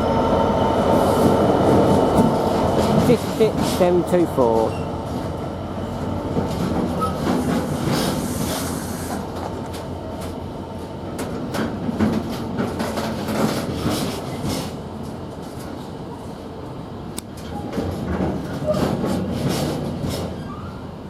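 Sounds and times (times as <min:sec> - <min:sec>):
train rumble: 0:00.0 - 0:21.0
freight train wheels clattering: 0:00.9 - 0:16.0, 0:17.3 - 0:20.6.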